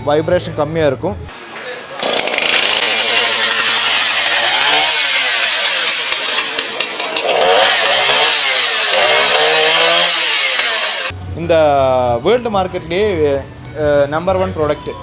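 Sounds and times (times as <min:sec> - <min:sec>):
chainsaw running hard: 0:01.3 - 0:11.1.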